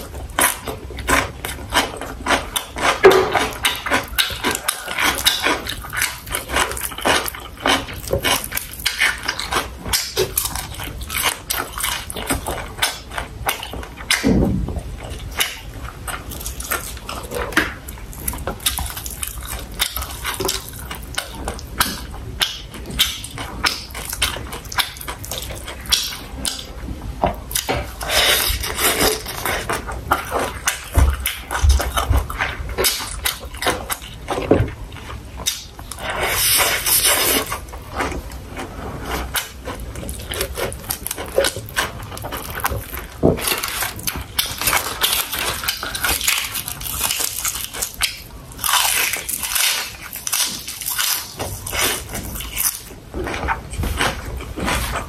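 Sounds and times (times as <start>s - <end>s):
wet chewing and mouth smacks: 15.1s - 26.7s, 27.5s - 55.0s.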